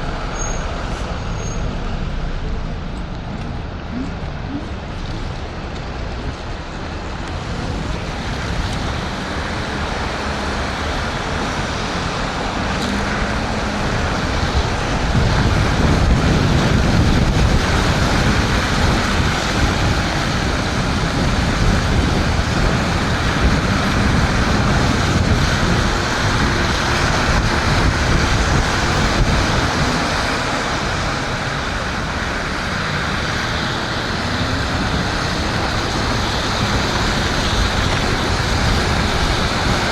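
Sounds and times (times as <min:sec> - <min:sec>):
wind rushing over microphone: 0:00.0 - 0:39.9
tyres hissing on wet pavement: 0:04.8 - 0:39.9.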